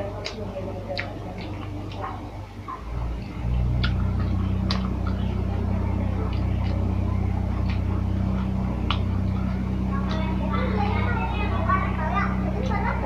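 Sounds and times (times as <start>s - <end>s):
clicks and crunches of eating: 0.0s - 10.4s
low motor hum: 0.0s - 13.0s.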